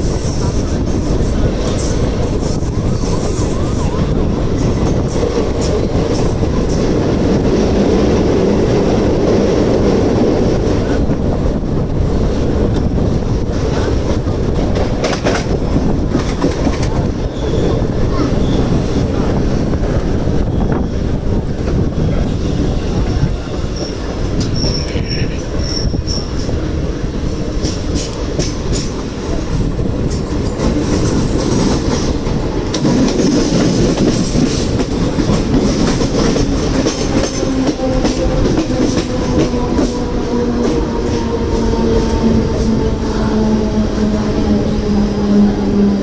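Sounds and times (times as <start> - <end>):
train rumbling: 0.0 - 46.0
high wheel squeal: 17.3 - 18.8, 23.5 - 26.4.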